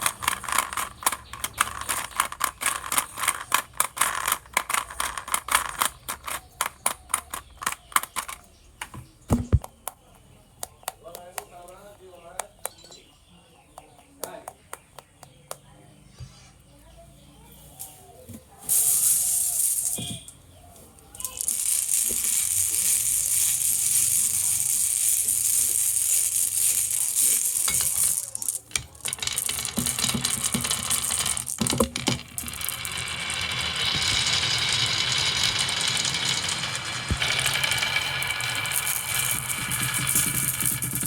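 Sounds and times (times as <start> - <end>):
marbles rattling down a marble run: 0.0 - 8.4, 18.7 - 20.3, 21.1 - 41.0.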